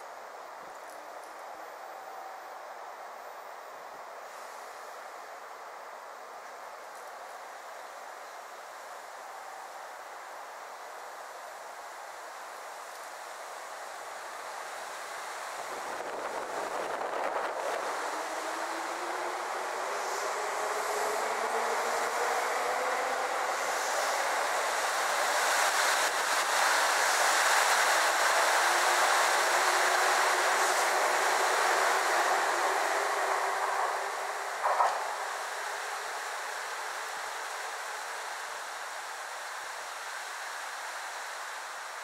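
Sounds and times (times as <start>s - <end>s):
electric train whine: 0.0s - 42.0s
wheels rumbling on rails: 14.9s - 39.4s.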